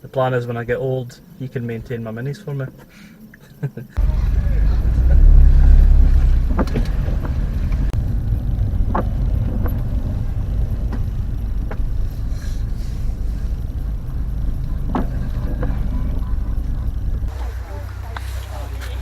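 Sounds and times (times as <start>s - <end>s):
car engine and road rumble: 4.0s - 19.0s
short knocks and rattles: 6.1s - 8.0s.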